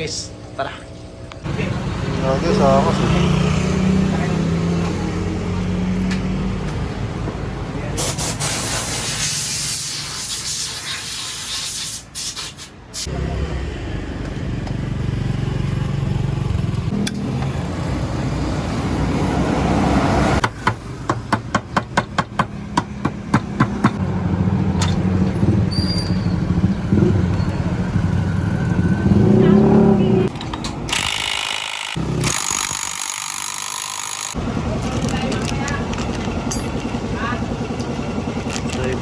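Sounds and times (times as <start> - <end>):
scooter engine running: 23.2 - 30.3, 33.9 - 39.0.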